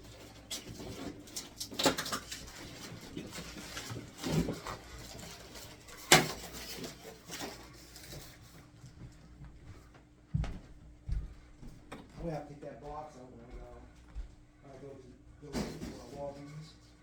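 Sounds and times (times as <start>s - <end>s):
light clatter and rustling: 0.0s - 10.0s, 15.4s - 17.0s.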